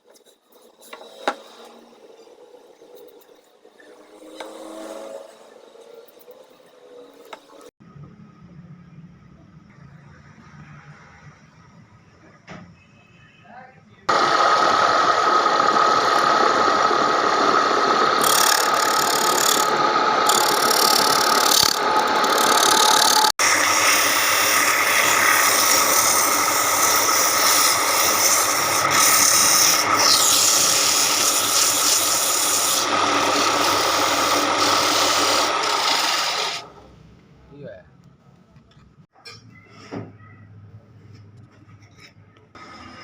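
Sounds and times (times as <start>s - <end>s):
power sander on wood: 14.1s - 36.8s.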